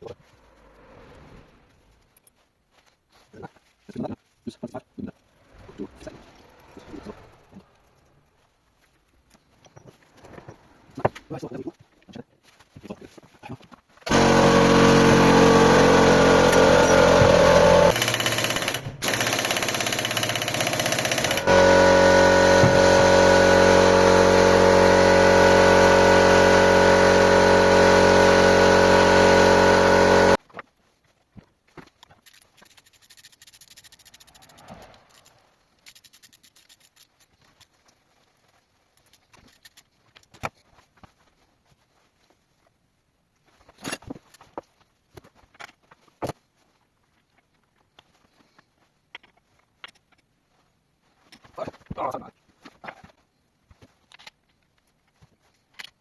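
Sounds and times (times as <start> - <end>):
loud power tool running: 14.1 - 30.4.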